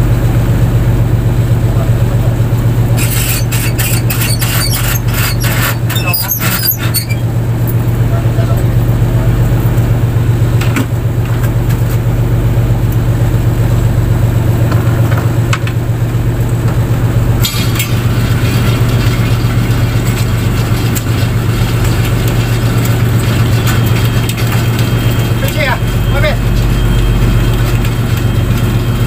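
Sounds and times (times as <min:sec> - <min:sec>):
boat engine running: 0:00.0 - 0:29.0.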